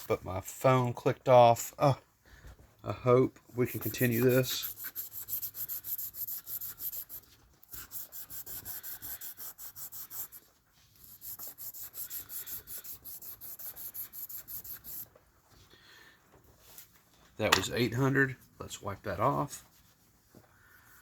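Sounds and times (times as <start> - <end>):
sandpaper rubbing on glass: 3.6 - 15.1.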